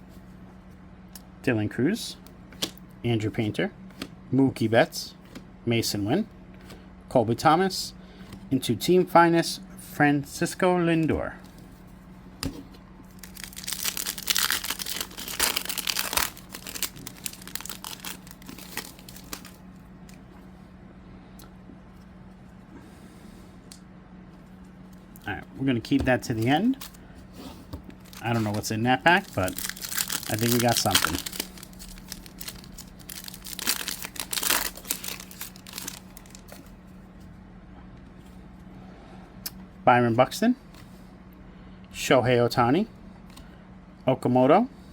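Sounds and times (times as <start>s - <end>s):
foil wrapper tearing and crinkling: 13.1s - 19.6s, 28.0s - 36.7s
cards clicking and rustling: 13.2s - 20.2s, 27.7s - 36.7s.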